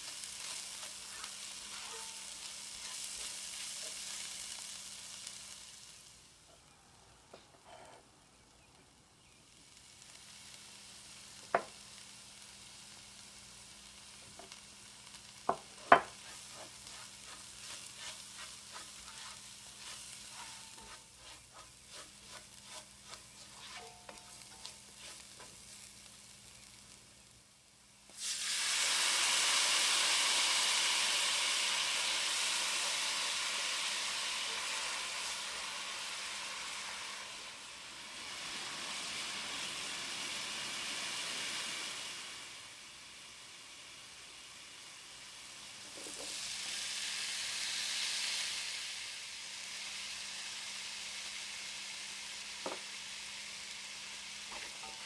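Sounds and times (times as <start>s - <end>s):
food frying in oil: 0.0s - 6.4s, 9.2s - 55.0s
loud sizzle: 0.0s - 55.0s
utensil knocking on pot: 15.5s - 16.1s.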